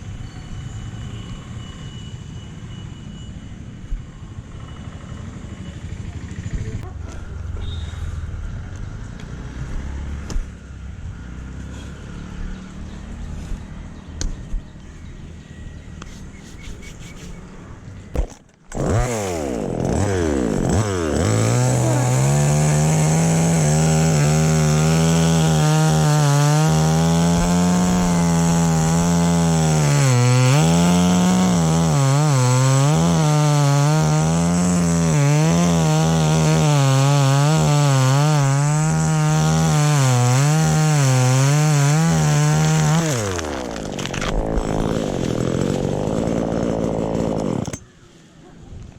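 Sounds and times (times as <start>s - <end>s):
chainsaw cutting wood: 18.2s - 47.8s.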